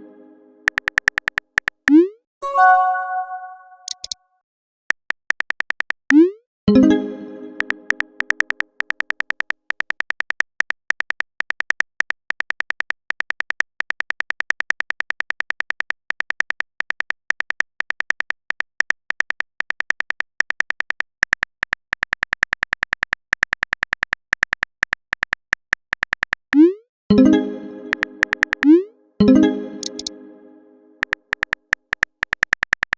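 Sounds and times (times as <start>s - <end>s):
electronic typing clicks: 0.6s - 2.1s, 3.7s - 4.2s, 7.6s - 26.8s, 27.9s - 28.8s, 29.4s - 30.1s, 31.0s - 32.9s.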